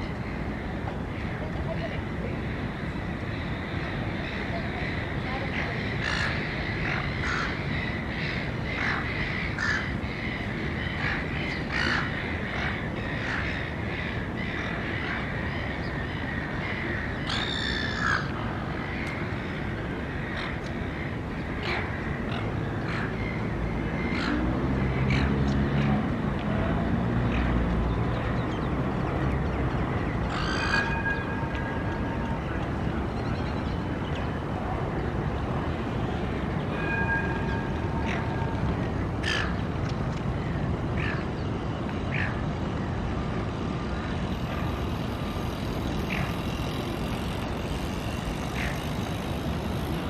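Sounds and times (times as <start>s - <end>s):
street background noise: 0.0s - 50.0s
birds calling harshly: 3.8s - 19.0s, 39.2s - 39.6s.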